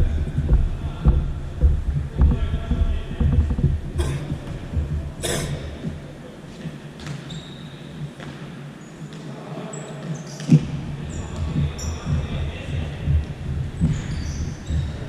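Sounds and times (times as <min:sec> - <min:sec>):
low throbbing hum: 0:00.0 - 0:06.3, 0:10.7 - 0:15.0.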